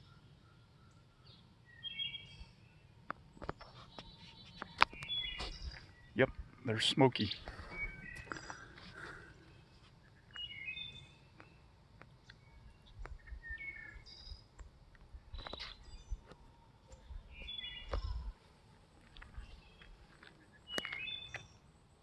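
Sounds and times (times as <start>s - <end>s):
small birds chirping: 0.0s - 18.4s, 19.0s - 21.8s
low rumble of wind on microphone: 12.5s - 20.1s.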